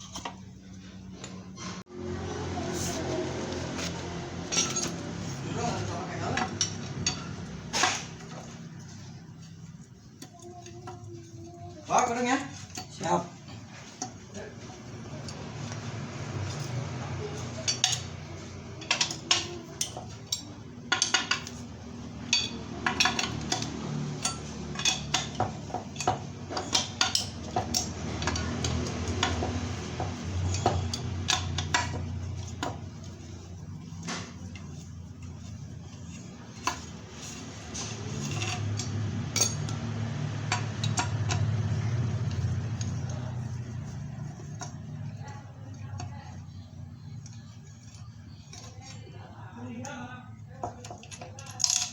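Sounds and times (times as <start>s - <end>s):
metal tools clinking and clanking: 2.7s - 9.1s, 17.4s - 33.2s, 33.8s - 44.8s, 50.6s - 51.9s.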